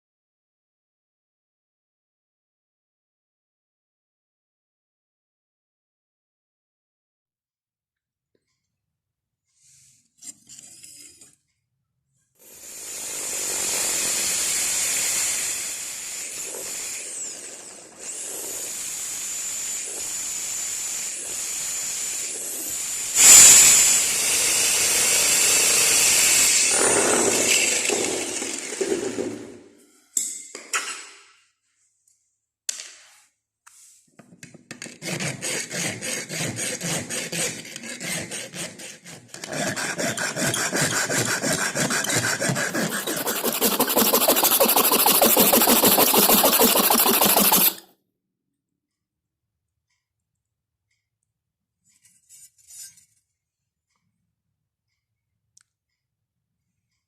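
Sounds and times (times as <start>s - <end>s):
power tool whining: 12.6s - 29.3s, 39.4s - 47.8s
hand tool strokes on steel: 35.2s - 47.8s.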